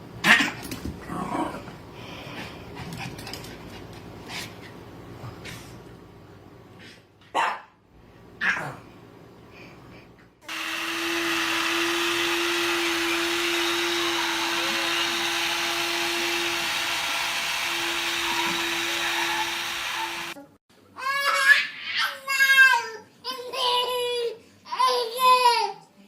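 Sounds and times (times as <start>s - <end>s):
appliance motor whirring: 10.5s - 20.4s.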